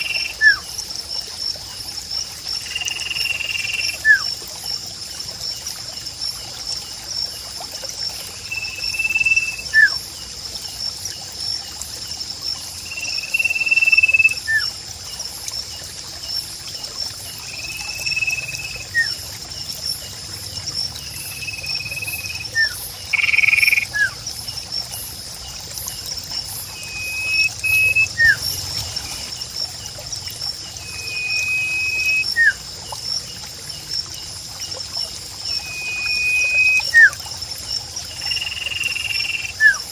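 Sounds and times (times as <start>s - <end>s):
bird whistled call: 22.0s - 24.2s, 26.8s - 28.6s, 30.9s - 32.6s, 35.6s - 37.2s.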